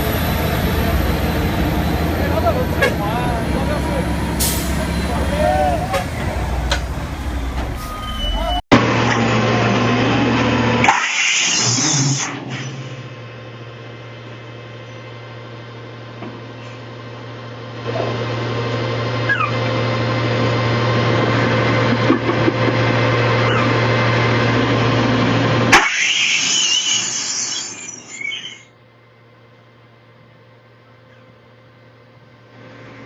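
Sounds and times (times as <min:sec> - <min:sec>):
truck engine running: 0:00.0 - 0:10.9, 0:13.0 - 0:25.8.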